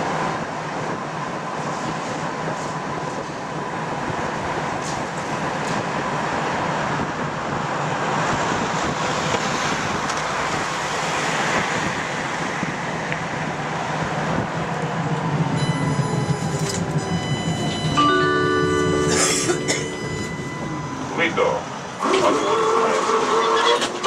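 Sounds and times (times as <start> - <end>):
tram wheels rumbling on track: 0.0 - 24.0
high steady ringing tones: 15.6 - 21.9.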